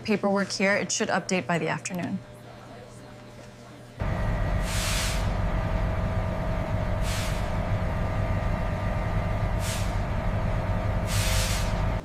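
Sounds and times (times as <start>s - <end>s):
factory machinery humming: 4.0s - 12.0s
compressed air hisses: 4.5s - 5.6s, 6.9s - 7.9s, 9.4s - 12.0s.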